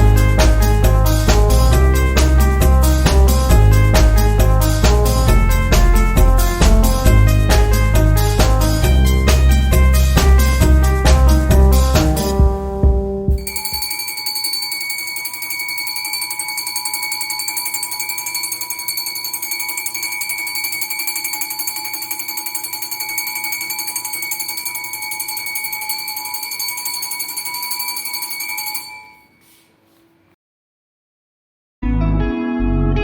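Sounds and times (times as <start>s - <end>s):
electric bell ringing: 13.3s - 29.6s.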